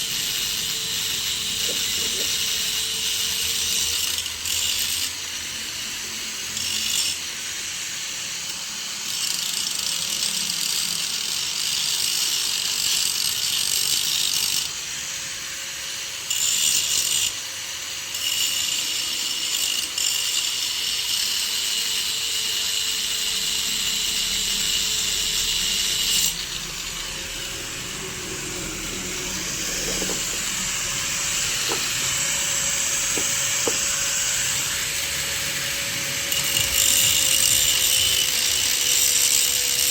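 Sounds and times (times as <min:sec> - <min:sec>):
angle grinder grinding metal: 0:00.0 - 0:39.9.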